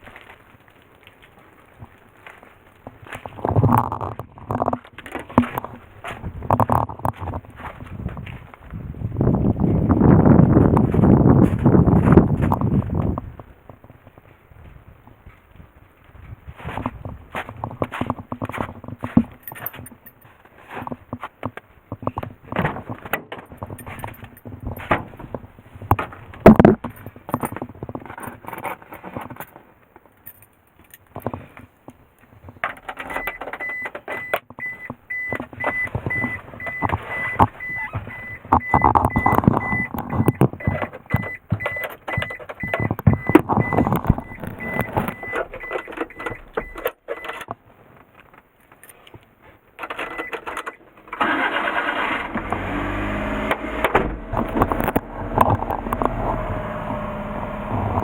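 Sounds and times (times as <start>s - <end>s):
handling knocks and clicks: 0.0s - 14.2s, 16.2s - 51.2s, 53.5s - 56.7s
high electronic warning beep: 33.2s - 47.3s.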